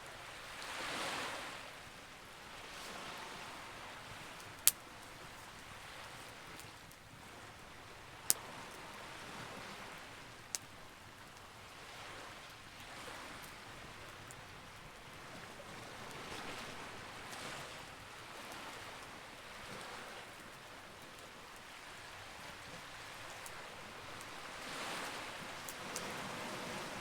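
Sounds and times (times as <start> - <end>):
campfire crackling: 2.2 - 27.0
fire popping: 4.3 - 7.1.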